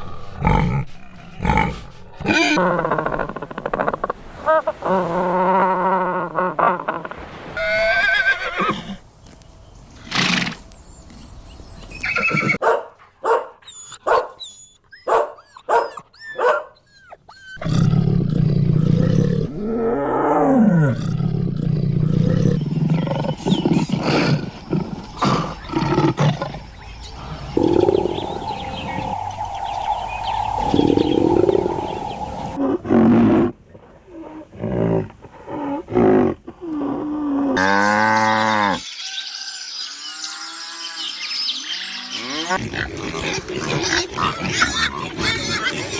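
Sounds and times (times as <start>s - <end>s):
horse whinnies: 7.6s - 9.0s, 12.0s - 12.6s.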